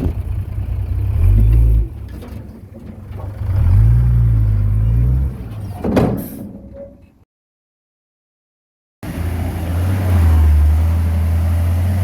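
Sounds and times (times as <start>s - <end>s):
heavy diesel engine revving: 3.4s - 5.4s, 9.0s - 12.0s.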